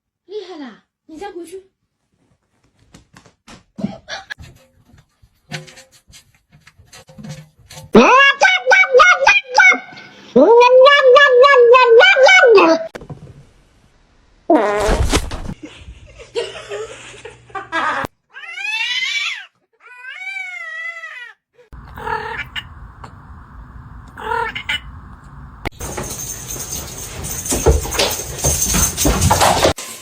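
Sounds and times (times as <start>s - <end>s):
cat yowling: 8.0s - 12.9s, 18.3s - 25.7s.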